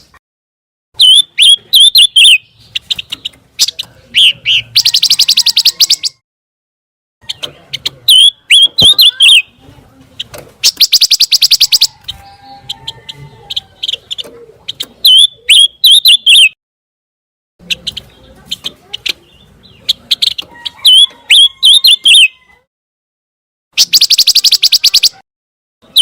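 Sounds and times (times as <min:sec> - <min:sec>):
bird song chirps and whistles: 0:01.0 - 0:06.2, 0:08.1 - 0:09.5, 0:10.6 - 0:12.7, 0:15.0 - 0:16.6, 0:19.3 - 0:22.4, 0:23.8 - 0:25.2
fast bird trills: 0:01.0 - 0:06.2, 0:07.2 - 0:09.5, 0:10.6 - 0:12.7, 0:13.5 - 0:16.6, 0:17.6 - 0:22.4, 0:23.8 - 0:25.2.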